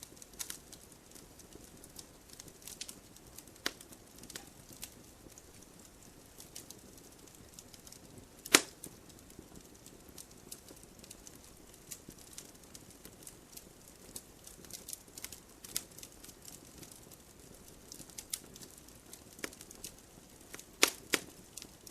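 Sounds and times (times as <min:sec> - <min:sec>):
firewood crackling in stove: 0:00.0 - 0:21.9
loud sharp wood snap: 0:08.4 - 0:08.8, 0:20.8 - 0:21.3.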